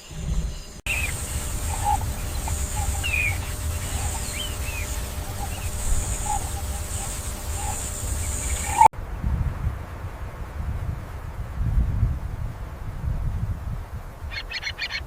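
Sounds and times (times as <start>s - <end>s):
steady high-pitched hiss: 0.0s - 8.9s
low rumble: 0.0s - 12.7s
short bird calls: 0.1s - 8.9s.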